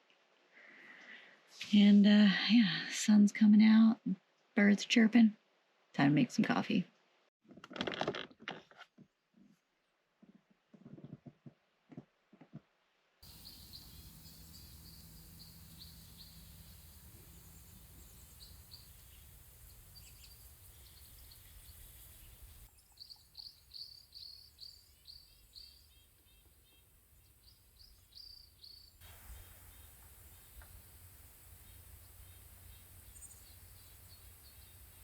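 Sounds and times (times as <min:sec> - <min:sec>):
songbirds chirping: 0:13.2 - 0:35.0
steady outdoor hiss: 0:13.2 - 0:35.0.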